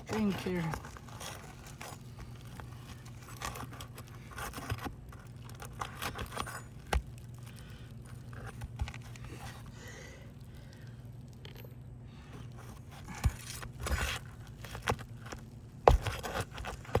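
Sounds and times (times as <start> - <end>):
shingles scraping and rustling: 0.0 - 9.7
low steady hum: 0.0 - 17.0.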